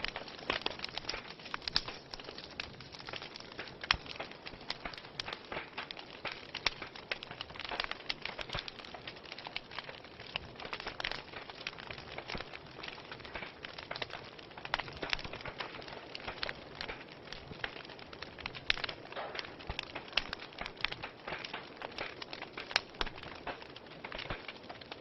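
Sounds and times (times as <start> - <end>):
fireplace fire crackling: 0.0 - 25.0.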